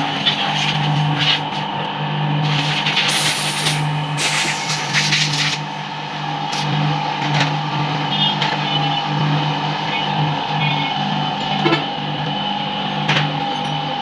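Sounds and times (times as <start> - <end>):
hissy rattly mechanical noise: 0.0 - 7.6.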